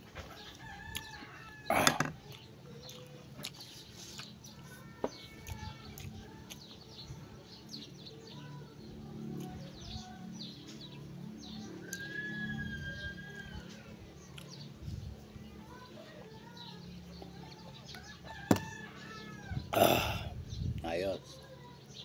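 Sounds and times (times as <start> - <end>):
birds calling and chirping: 0.0 - 22.0.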